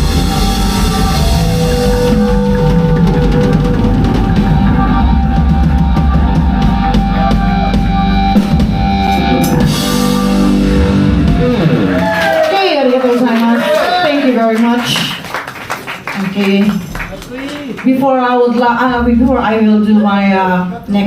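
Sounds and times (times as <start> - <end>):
rapid drum hits: 0.0 - 12.2
rock band playing live: 0.0 - 13.1.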